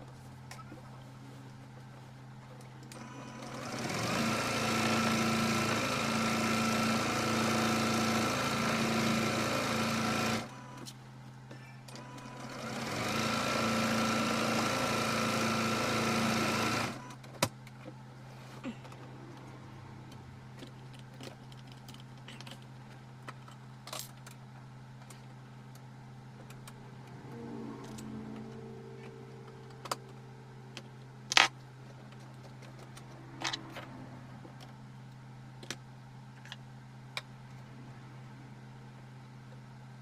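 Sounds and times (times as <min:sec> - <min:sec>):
steady electrical hum: 0:16.8 - 0:40.0
brief pitched whir: 0:26.7 - 0:31.1.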